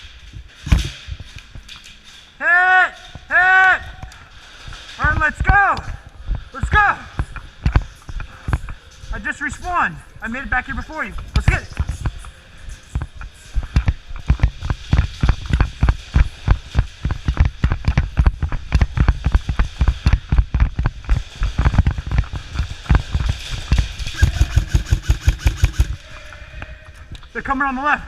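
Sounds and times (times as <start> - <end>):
running footsteps: 13.7 - 26.1
gear jostling: 22.0 - 26.0.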